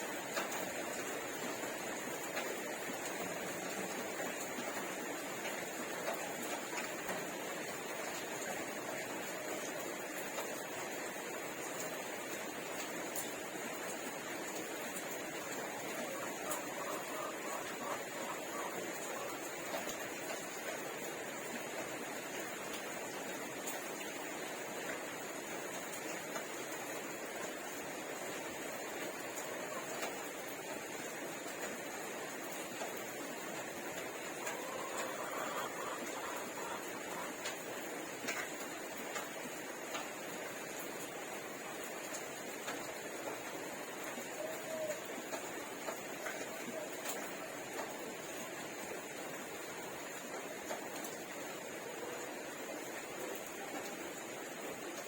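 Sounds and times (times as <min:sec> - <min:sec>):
steady background hiss: 0:00.0 - 0:55.0.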